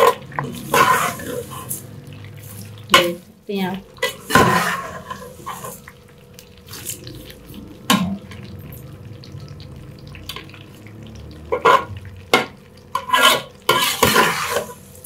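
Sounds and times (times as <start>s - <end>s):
spoon scraping and knocking pan: 0.0s - 1.8s, 4.0s - 5.8s, 11.5s - 14.8s
vermicelli sizzling in oil: 0.0s - 15.0s.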